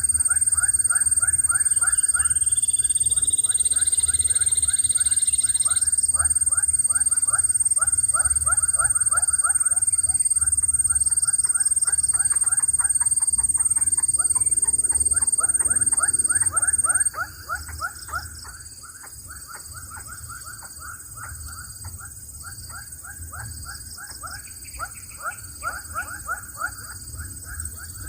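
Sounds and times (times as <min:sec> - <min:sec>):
bird chicks chirping: 0:00.0 - 0:18.6
steady high-pitched whine: 0:00.0 - 0:28.0.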